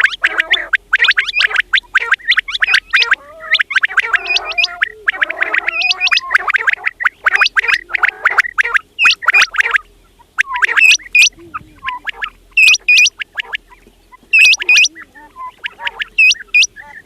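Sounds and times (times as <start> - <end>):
quails chattering calls: 0.0 - 17.0
quails whistled calls: 0.0 - 17.0.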